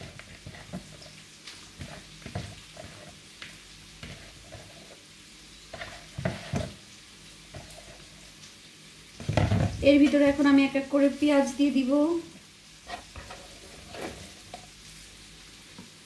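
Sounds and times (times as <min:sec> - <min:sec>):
soft taps and rustles in pan: 0:00.0 - 0:05.1, 0:05.7 - 0:06.9, 0:07.5 - 0:08.6, 0:09.2 - 0:10.6, 0:12.9 - 0:16.0
louder knocks in pan: 0:09.2 - 0:09.8.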